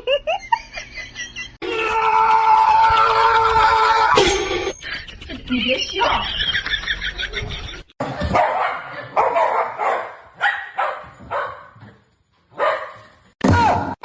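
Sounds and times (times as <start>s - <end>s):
dog barking: 8.3s - 11.8s, 12.5s - 13.1s.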